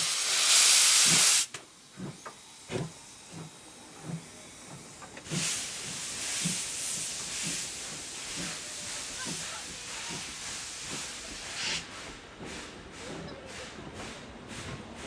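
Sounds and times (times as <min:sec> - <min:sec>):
steam hissing: 0:00.0 - 0:15.0
steam locomotive chuffing: 0:00.0 - 0:15.0.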